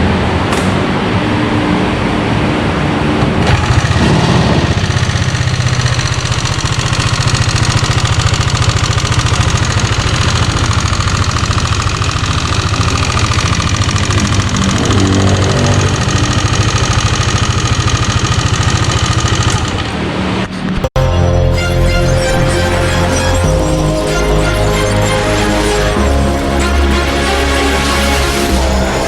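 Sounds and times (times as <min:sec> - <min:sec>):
engine ticking clatter: 0:03.3 - 0:20.1
scooter engine idling: 0:03.4 - 0:20.1.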